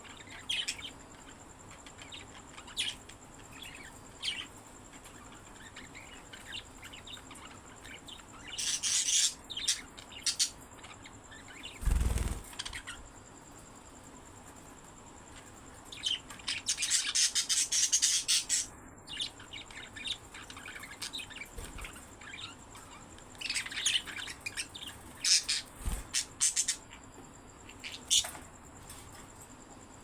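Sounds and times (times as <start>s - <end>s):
parrots chirping and squawking: 3.6s - 13.0s, 16.0s - 27.0s, 27.7s - 28.4s.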